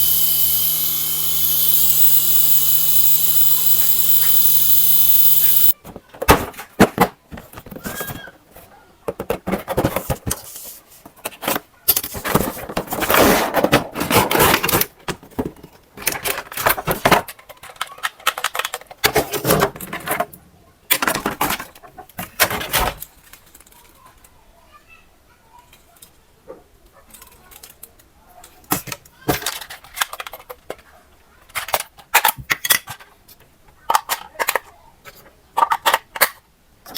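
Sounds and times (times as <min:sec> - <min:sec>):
toy helicopter motor whine: 0:00.0 - 0:05.8
toys and packaging rattling: 0:00.0 - 0:24.4, 0:27.1 - 0:36.9.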